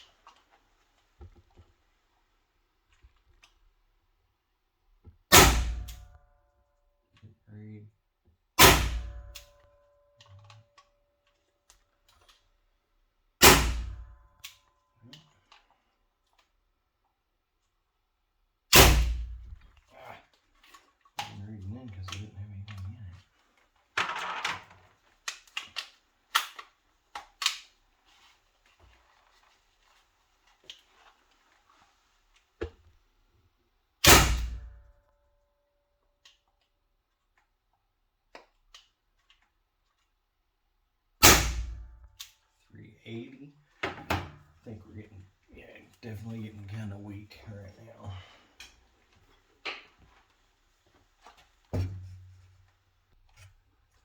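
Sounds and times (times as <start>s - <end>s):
air revolver shots: 5.3s - 6.0s, 8.6s - 9.4s, 13.4s - 14.1s, 18.7s - 19.5s, 34.0s - 34.7s, 41.2s - 41.9s.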